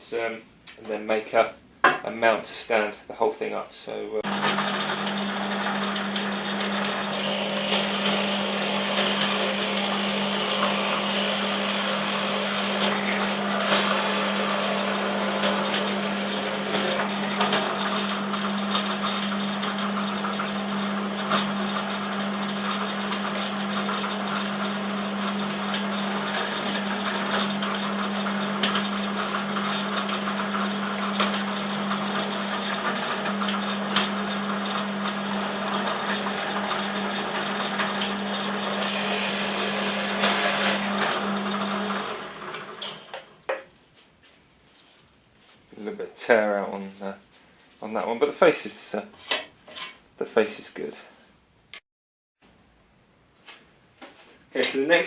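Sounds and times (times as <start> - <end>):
electric drill boring wood: 4.2 - 43.3.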